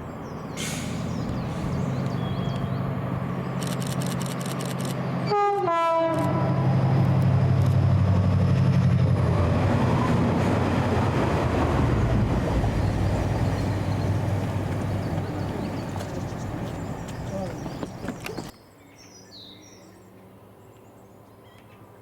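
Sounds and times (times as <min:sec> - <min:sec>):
locomotive engine droning: 0:00.0 - 0:18.5
rumble of train wagons: 0:00.0 - 0:18.6
two-tone train horn: 0:05.2 - 0:06.9.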